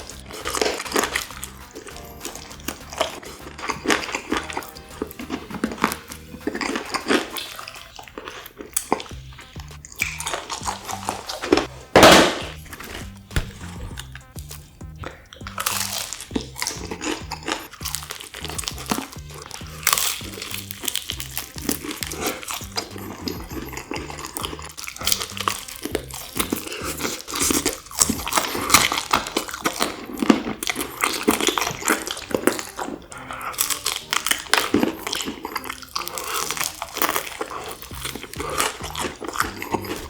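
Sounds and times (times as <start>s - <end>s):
crunching of fried food chewed: 0.0s - 40.0s
soft background music: 0.0s - 40.0s.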